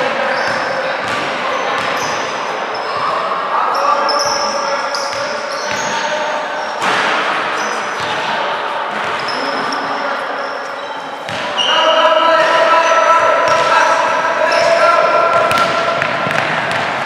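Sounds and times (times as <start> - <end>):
voices echoing in a hall: 0.0 - 17.0
shoe squeaks: 0.2 - 6.8, 7.6 - 8.4, 9.0 - 13.1
basketball bouncing: 11.3 - 11.6, 15.3 - 17.0.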